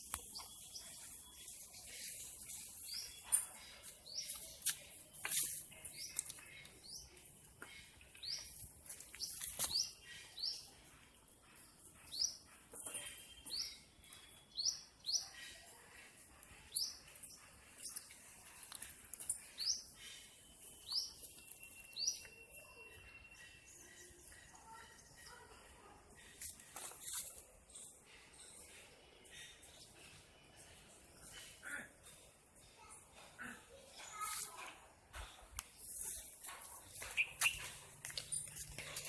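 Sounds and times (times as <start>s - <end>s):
small bird chirping: 0.0s - 25.4s, 35.2s - 39.0s.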